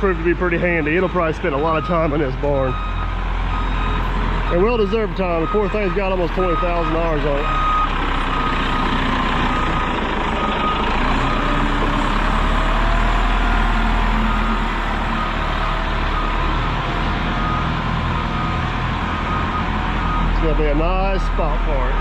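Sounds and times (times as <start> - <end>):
loader engine running: 0.0 - 22.0
backup alarm beeping: 0.9 - 11.6.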